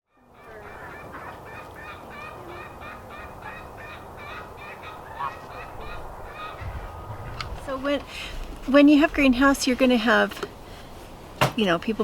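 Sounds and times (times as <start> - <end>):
poultry flock calling: 0.2 - 6.9.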